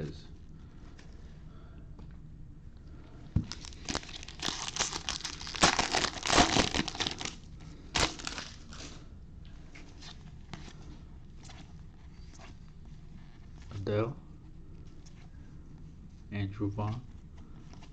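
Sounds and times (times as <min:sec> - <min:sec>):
plastic wrapper crinkling and tearing: 0:03.4 - 0:09.0.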